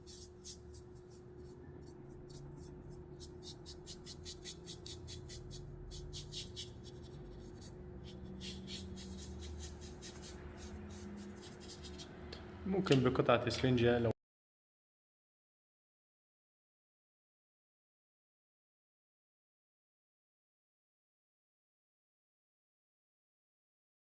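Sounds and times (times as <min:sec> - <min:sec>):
paintbrush scratchy strokes: 0:00.0 - 0:12.2
faint steady hum: 0:00.0 - 0:14.1.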